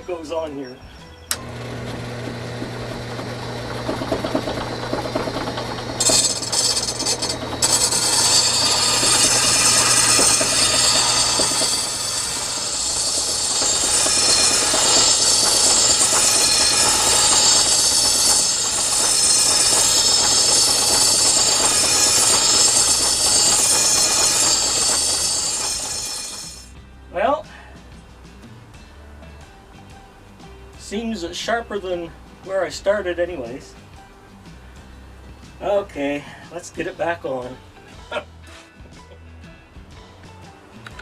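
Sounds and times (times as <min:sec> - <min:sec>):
blade rasping on grinding wheel: 0:01.3 - 0:26.7
grinder motor hum: 0:01.3 - 0:26.7.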